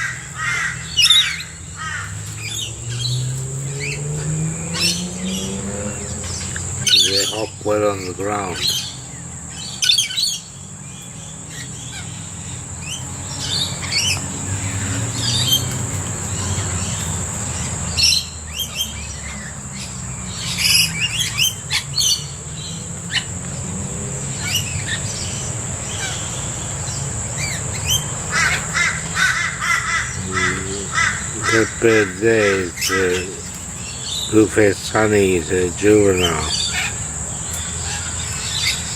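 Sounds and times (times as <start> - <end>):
birds screeching and chirping: 0.0 - 38.9.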